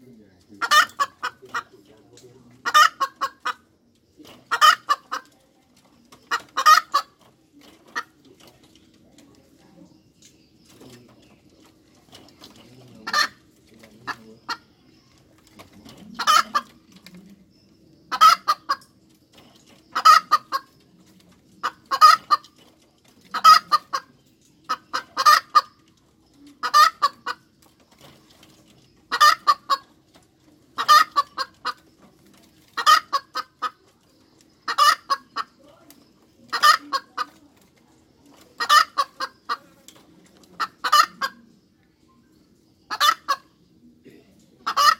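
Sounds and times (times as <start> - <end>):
hen cackling: 0.5 - 1.8, 2.5 - 3.7, 4.4 - 5.3, 6.1 - 7.2, 13.0 - 13.4, 15.8 - 16.9, 18.1 - 19.0, 19.9 - 20.8, 21.6 - 22.6, 23.2 - 25.8, 26.5 - 27.5, 29.1 - 30.0, 30.8 - 31.8, 32.8 - 33.8, 34.6 - 35.6, 36.4 - 37.6, 38.3 - 39.8, 40.5 - 41.5, 42.9 - 43.5, 44.6 - 44.9.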